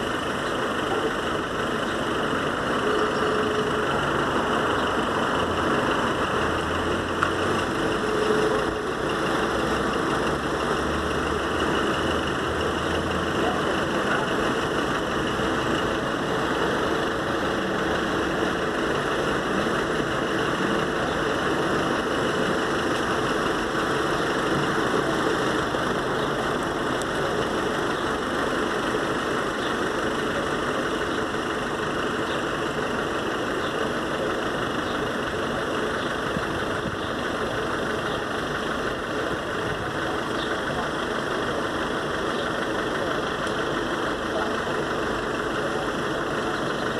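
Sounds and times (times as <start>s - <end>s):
vehicle engines idling: 0.0s - 46.9s.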